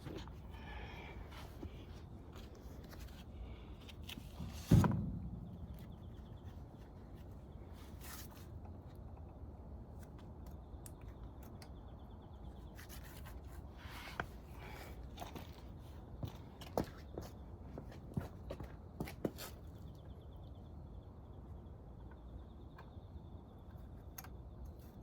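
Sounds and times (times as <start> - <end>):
heavy thump on workbench: 4.7 - 5.9.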